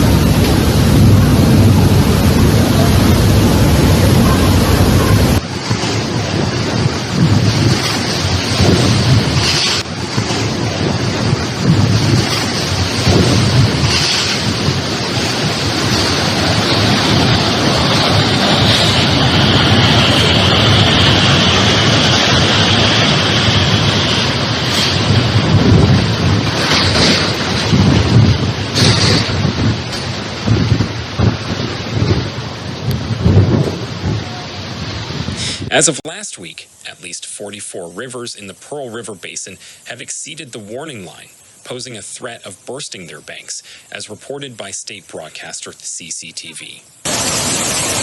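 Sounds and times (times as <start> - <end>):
wind buffeting microphone: 0.0 - 35.8
rushing storm water: 0.0 - 48.0.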